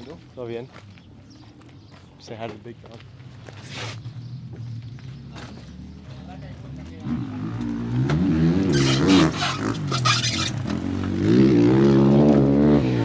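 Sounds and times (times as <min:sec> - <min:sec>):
motocross bike engine revving: 0:07.3 - 0:13.0.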